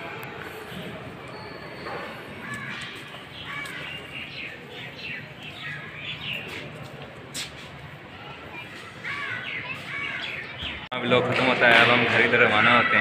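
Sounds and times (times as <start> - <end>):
birds chirping: 0.0 - 7.3, 8.2 - 11.2.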